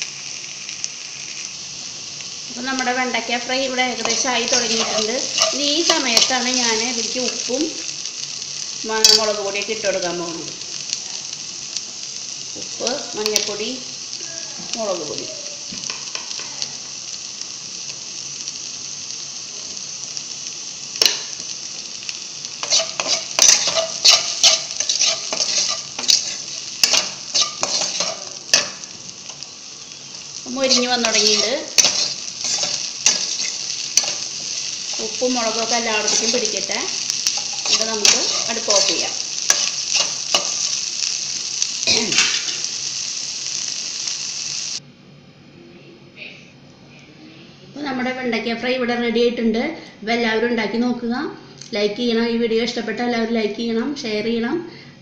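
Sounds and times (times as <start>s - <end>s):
okra sizzling in a pan: 0.0s - 44.8s, 47.8s - 55.0s
spatula scraping and tapping pan: 22.6s - 29.4s.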